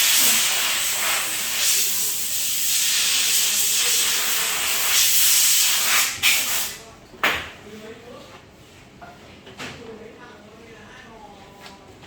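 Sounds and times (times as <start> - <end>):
pressurised air hissing: 0.0 - 6.8.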